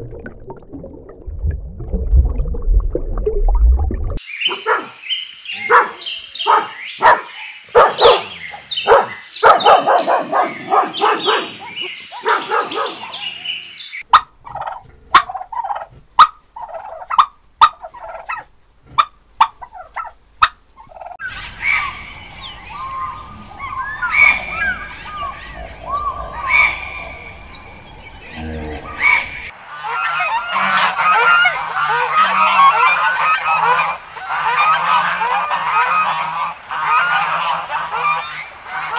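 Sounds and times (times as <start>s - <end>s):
turkeys calling: 7.8s - 38.9s
geese honking: 22.7s - 27.6s, 28.3s - 38.9s.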